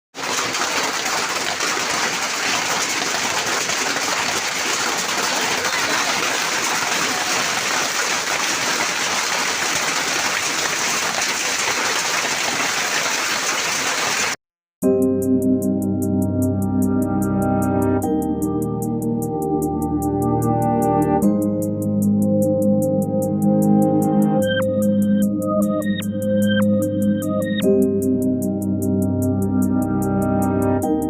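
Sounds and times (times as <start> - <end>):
heavy rain and hail pelting: 0.2 - 14.4.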